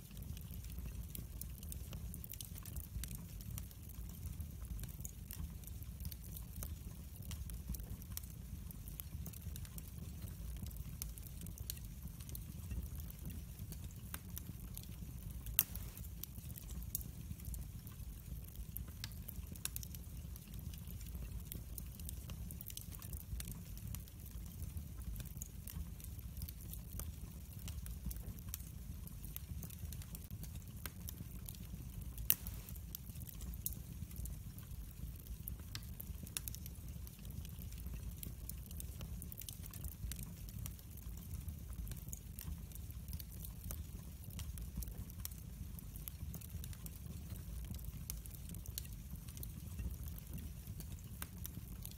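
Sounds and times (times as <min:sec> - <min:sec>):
fire flames rumbling: 0:00.0 - 0:51.9
wood fire crackling: 0:00.0 - 0:51.9.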